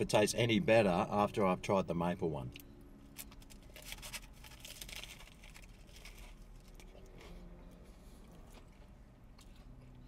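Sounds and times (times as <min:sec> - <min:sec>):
man chewing crispy food: 0:03.1 - 0:10.0.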